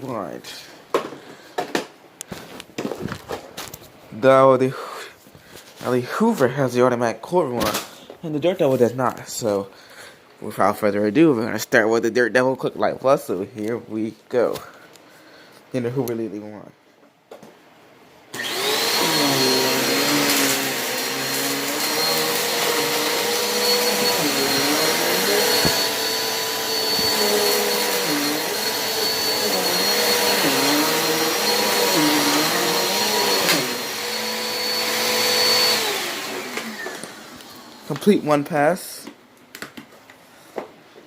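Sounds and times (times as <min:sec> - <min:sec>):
vacuum cleaner running: 0:18.3 - 0:38.1.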